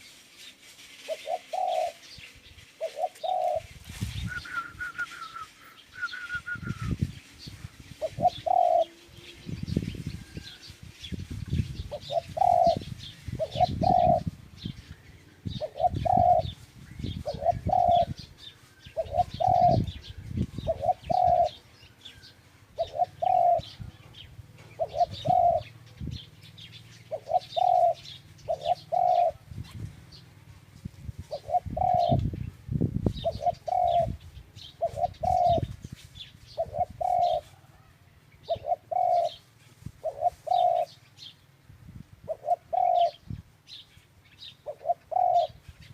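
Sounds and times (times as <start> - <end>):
small birds chirping: 0.0 - 37.6, 38.3 - 41.7, 42.3 - 45.9
dove cooing: 1.1 - 2.2, 2.8 - 10.6, 11.8 - 29.8, 31.2 - 32.4, 33.2 - 35.8, 36.5 - 39.4, 40.0 - 41.0, 42.3 - 43.3, 44.6 - 45.6.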